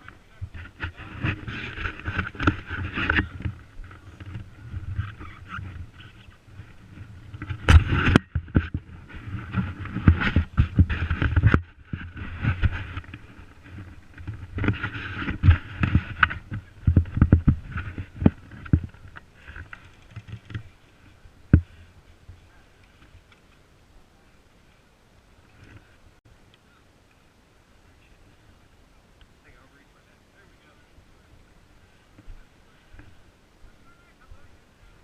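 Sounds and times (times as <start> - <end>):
clothing rustling against camera: 0.0 - 23.6.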